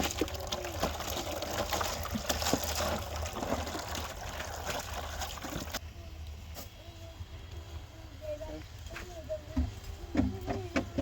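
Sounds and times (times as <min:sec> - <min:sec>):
water trickling and splashing: 0:00.0 - 0:05.9.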